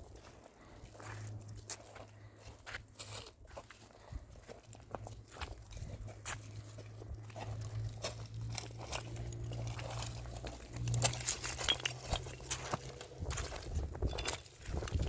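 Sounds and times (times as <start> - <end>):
crunching and clicking: 0.9 - 15.0
low steady hum: 4.2 - 15.0.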